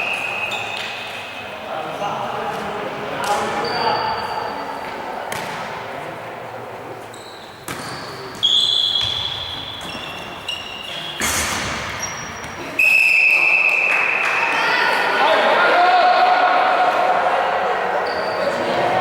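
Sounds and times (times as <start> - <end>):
ball thumping with echo: 5.3 - 5.9, 7.6 - 10.4.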